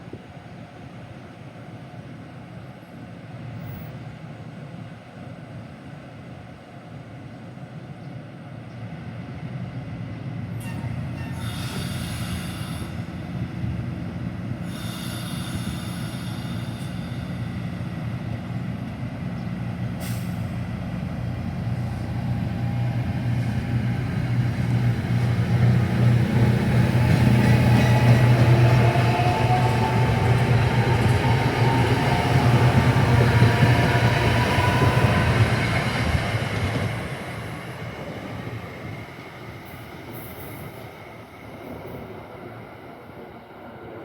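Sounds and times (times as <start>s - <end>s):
train rumble and drone: 0.0s - 44.0s
air brakes hissing: 10.6s - 13.2s, 14.6s - 17.6s, 20.0s - 20.6s.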